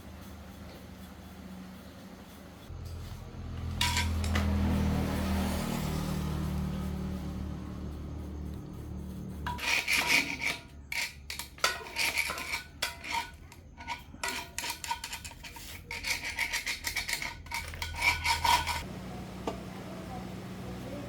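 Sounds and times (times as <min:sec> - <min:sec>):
hand tool scraping metal: 0:03.7 - 0:06.2, 0:08.0 - 0:18.9.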